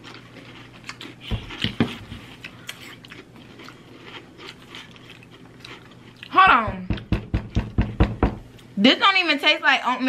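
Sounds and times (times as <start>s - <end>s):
cereal crunching and chewing: 0.0s - 6.4s.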